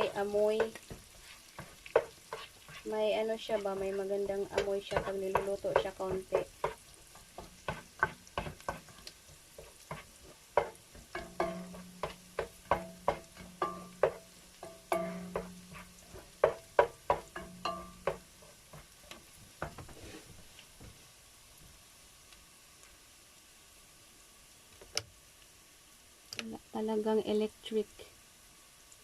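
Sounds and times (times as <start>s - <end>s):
onion and garlic sizzling: 0.0s - 29.0s
utensil scraping metal pan: 9.6s - 16.6s.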